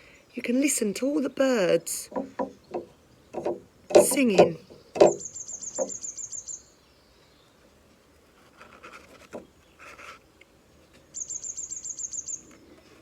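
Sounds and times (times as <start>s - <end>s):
songbird trilling: 1.2s - 6.7s, 11.2s - 12.5s
soft rustles: 7.9s - 11.1s.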